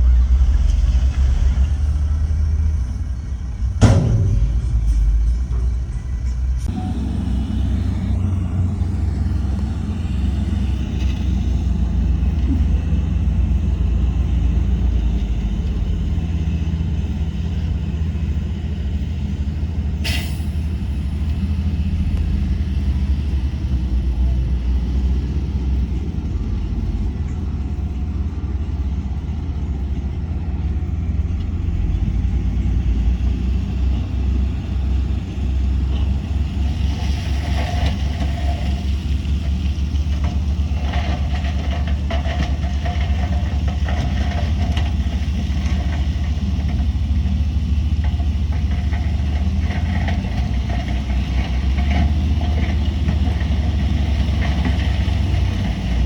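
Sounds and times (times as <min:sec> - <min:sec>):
heavy machinery engine rumble: 0:00.0 - 0:56.0.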